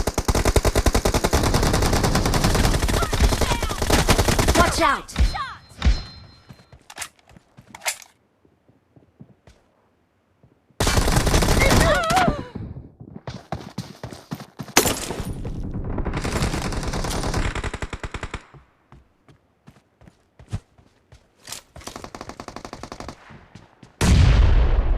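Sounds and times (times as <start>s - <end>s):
video game automatic gunfire: 0.0s - 4.8s, 14.8s - 18.5s.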